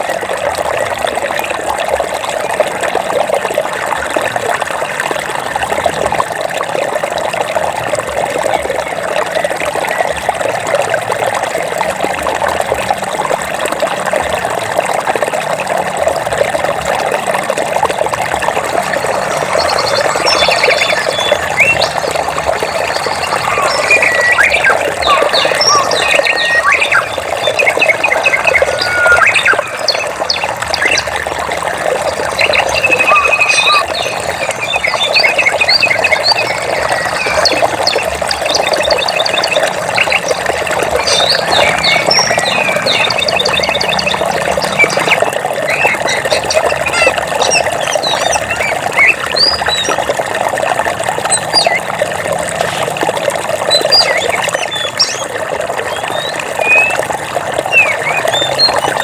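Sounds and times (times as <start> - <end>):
running water: 0.0 - 59.0
birds chirping and trilling: 18.5 - 50.1, 51.3 - 51.9, 53.6 - 59.0.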